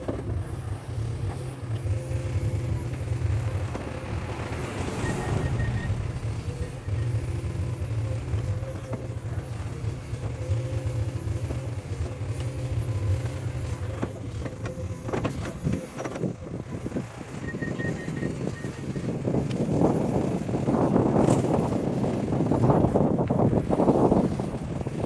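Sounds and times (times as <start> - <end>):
diesel engine running: 0.0 - 25.0
short high beeps: 4.8 - 7.2.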